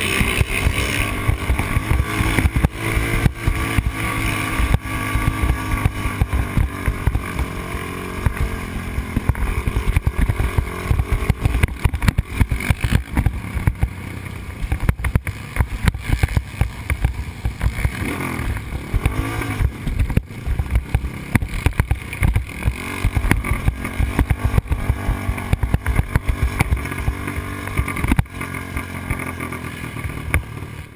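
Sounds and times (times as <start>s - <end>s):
quad engine revving: 0.0s - 30.9s.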